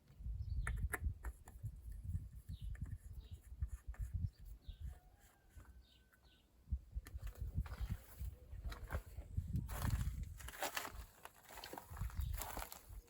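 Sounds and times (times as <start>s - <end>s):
bird chirping: 0.2s - 1.1s, 2.2s - 6.6s.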